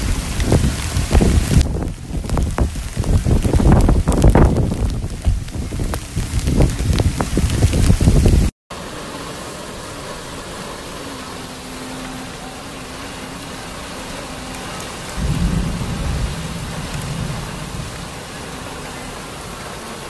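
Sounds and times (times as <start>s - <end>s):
thunder rumble: 0.0s - 8.5s, 13.6s - 20.0s
heavy rain on paving: 0.0s - 20.0s.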